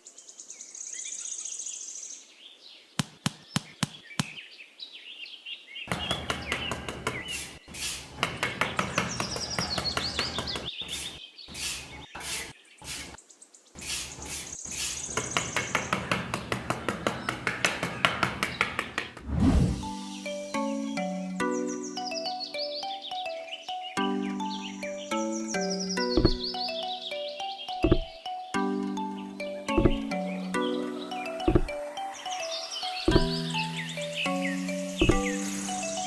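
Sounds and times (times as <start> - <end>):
birds chirping: 0.0 - 19.2, 19.8 - 36.0
rapid sharp knocks: 5.9 - 7.4, 26.2 - 26.5, 27.8 - 28.1, 29.7 - 30.1, 31.4 - 31.8, 33.1 - 33.4, 35.0 - 35.3.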